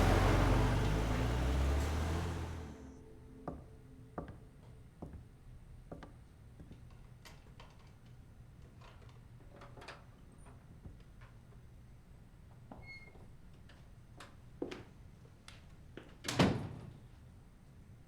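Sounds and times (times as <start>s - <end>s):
vehicle noise: 0.0s - 3.1s.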